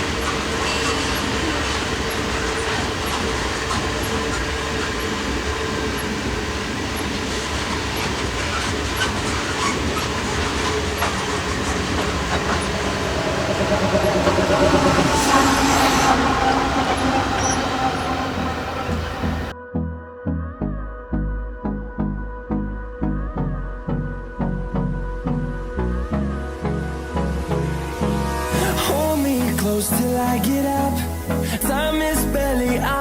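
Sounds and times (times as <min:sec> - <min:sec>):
freight train rumbling: 0:00.0 - 0:19.5, 0:28.2 - 0:33.0
wheels clicking over rail joints: 0:00.0 - 0:19.5.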